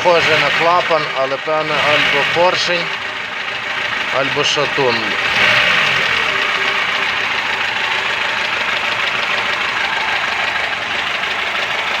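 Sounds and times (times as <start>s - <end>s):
engine running with rhythmic knock: 0.0s - 12.0s.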